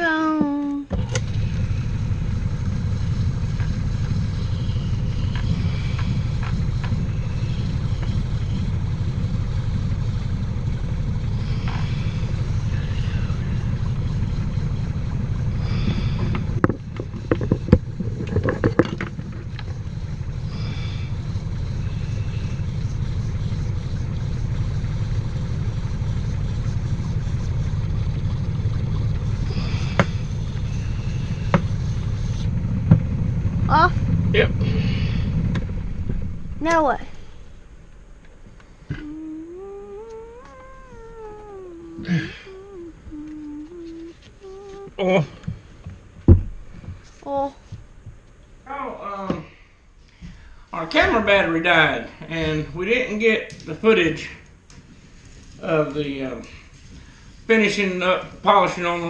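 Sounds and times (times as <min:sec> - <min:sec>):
lathe motor running: 0:00.9 - 0:47.2
sharp knocks and clatter: 0:16.2 - 0:20.0, 0:31.4 - 0:33.4.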